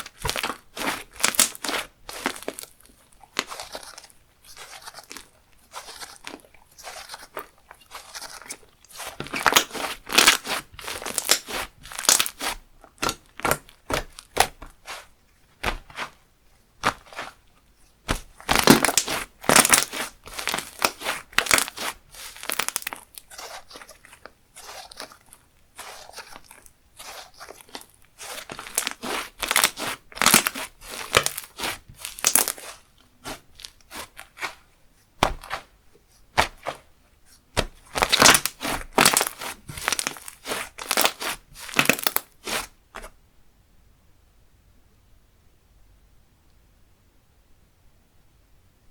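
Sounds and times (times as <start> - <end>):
slime crackling and popping: 0.0 - 16.0, 18.1 - 34.6, 37.6 - 42.7.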